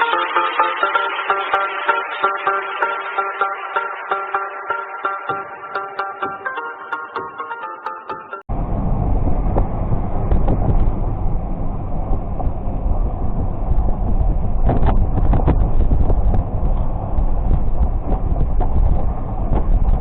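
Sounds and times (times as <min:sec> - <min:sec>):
wind buffeting microphone: 0:08.6 - 0:20.0.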